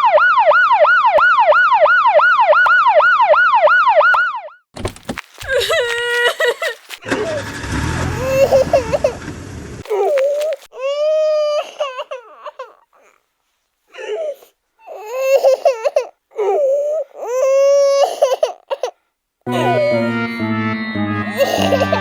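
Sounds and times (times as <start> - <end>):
high-pitched voice wailing: 19.5 - 20.5, 21.3 - 22.0.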